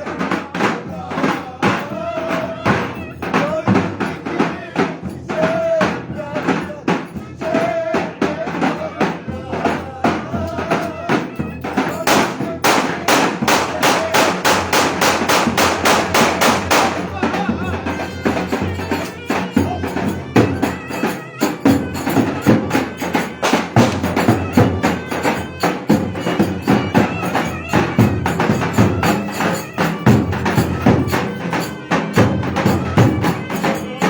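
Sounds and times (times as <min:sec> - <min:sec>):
folk dance melody: 0:09.7 - 0:34.0.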